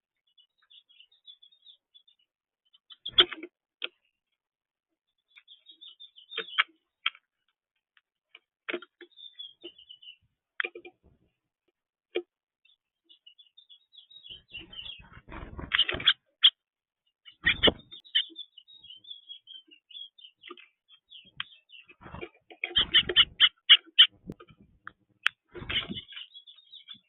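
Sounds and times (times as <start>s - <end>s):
small birds chirping: 0.0s - 27.0s
rustling or fluttering: 14.6s - 16.2s, 25.5s - 26.1s.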